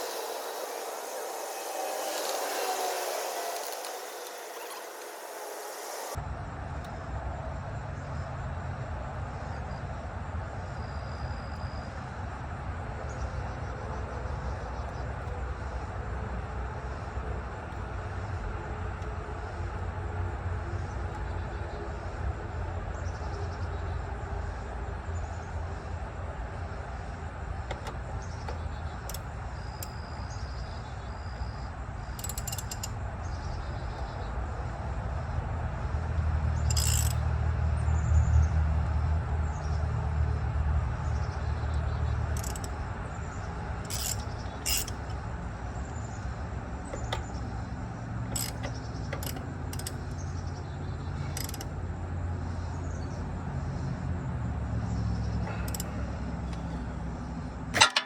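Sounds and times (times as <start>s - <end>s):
low mechanical hum: 0.0s - 58.0s
sharp metallic clicks: 27.7s - 30.7s, 31.4s - 34.2s, 36.6s - 37.2s, 42.3s - 42.9s, 43.5s - 45.4s, 46.2s - 50.4s, 51.3s - 51.7s, 55.6s - 56.9s, 57.6s - 58.0s.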